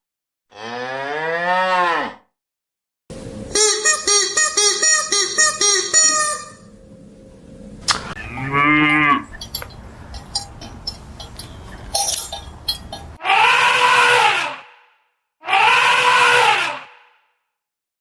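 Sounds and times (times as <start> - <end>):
cow mooing: 0.5 - 2.2, 8.2 - 14.3.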